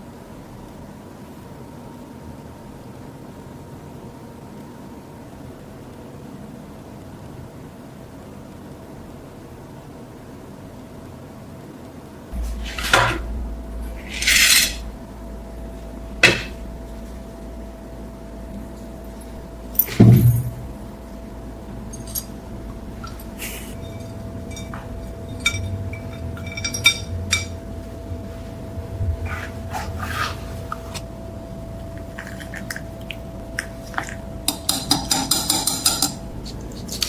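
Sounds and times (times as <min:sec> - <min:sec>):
steady low hum: 0:12.0 - 0:37.0
steel knife clinking and scraping: 0:14.1 - 0:14.8.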